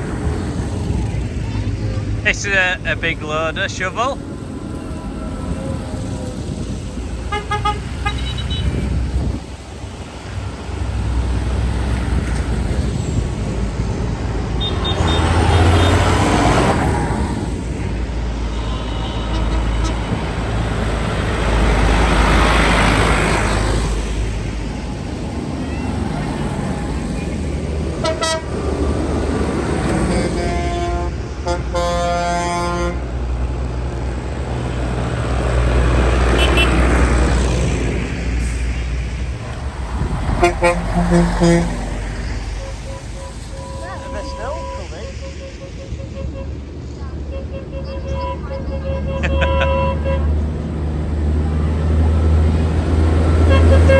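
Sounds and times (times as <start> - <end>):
tractor engines passing: 0.0 - 53.9
vehicle horns tooting: 7.2 - 9.0, 14.5 - 16.7, 17.8 - 21.8, 25.7 - 33.1, 36.1 - 37.1, 40.3 - 50.4, 53.2 - 53.9
short horn toots: 36.3 - 36.9, 40.4 - 41.8.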